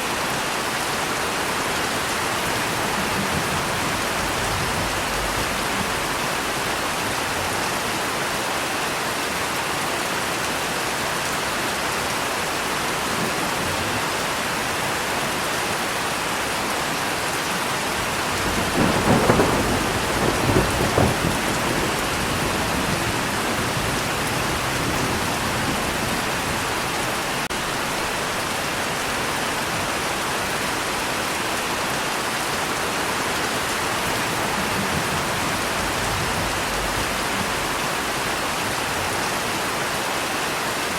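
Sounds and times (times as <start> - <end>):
steady rain falling: 0.0 - 40.9
thunder rumbling: 1.7 - 7.6, 17.8 - 28.4, 33.7 - 39.2.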